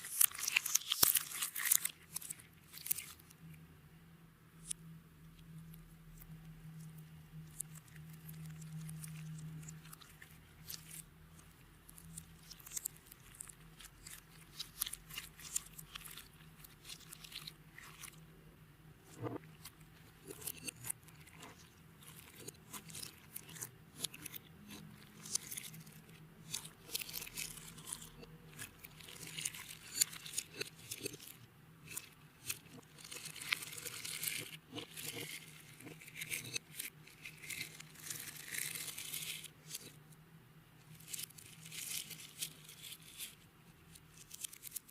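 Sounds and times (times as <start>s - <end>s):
sticky clicks of hand-worked slime: 19.3s - 38.2s.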